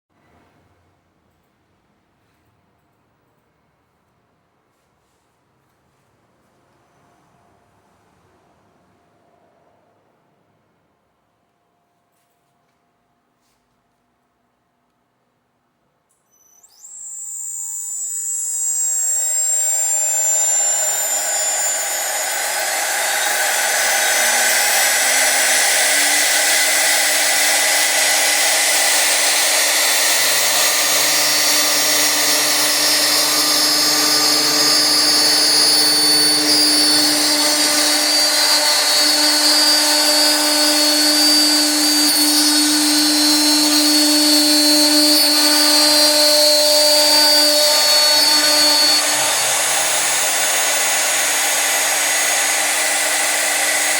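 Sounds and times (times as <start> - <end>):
router spindle whine: 16.2 - 53.9.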